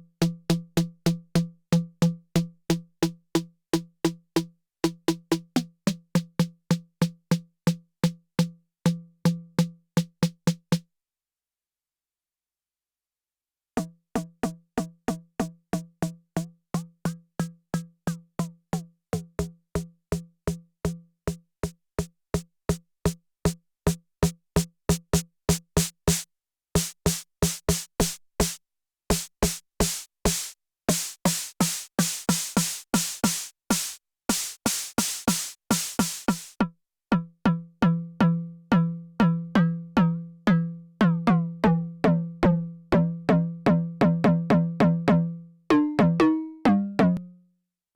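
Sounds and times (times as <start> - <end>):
synth snare drum pattern: 23.9 - 36.6.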